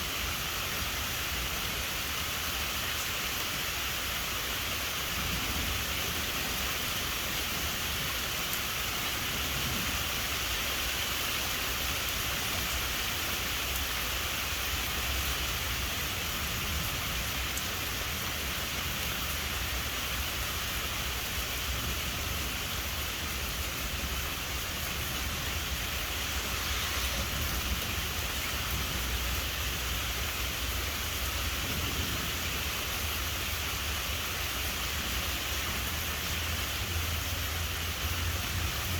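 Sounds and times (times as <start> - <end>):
rain falling: 0.0 - 38.9
distant thunder rumble: 31.4 - 33.2.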